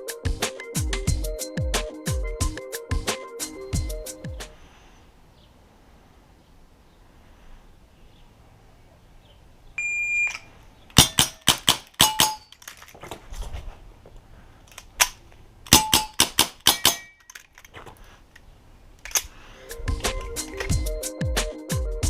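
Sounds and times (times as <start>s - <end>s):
shot timer beep: 9.8s - 10.5s
airsoft revolver firing: 11.0s - 12.4s, 15.0s - 17.2s
steel targets ringing: 11.0s - 12.6s, 15.7s - 17.3s.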